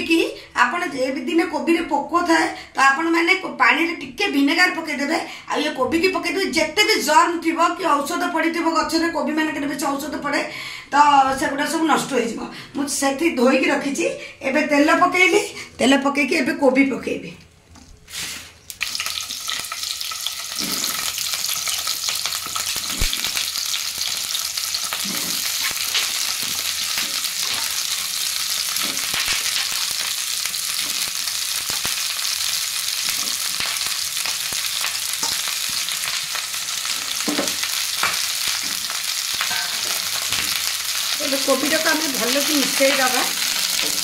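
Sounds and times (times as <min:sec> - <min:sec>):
vegetables sizzling in hot oil: 0:18.1 - 0:44.0
florets thumping into pan: 0:37.0 - 0:40.6.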